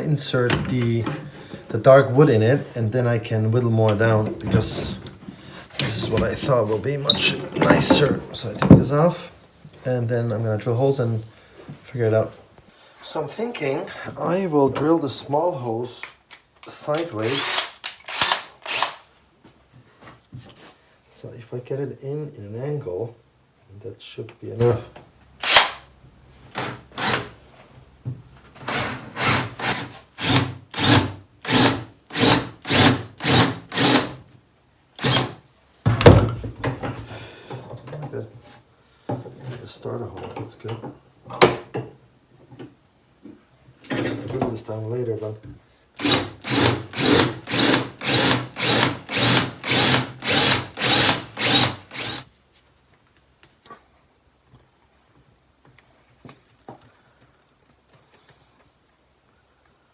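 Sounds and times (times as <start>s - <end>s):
hand tool cutting wood: 17.2s - 19.0s, 26.6s - 27.3s, 28.6s - 34.2s, 35.0s - 35.4s, 46.0s - 52.3s
power drill drilling into wood: 17.2s - 19.0s, 25.4s - 25.8s, 26.6s - 27.3s, 28.6s - 34.2s, 35.0s - 35.3s, 46.0s - 52.2s.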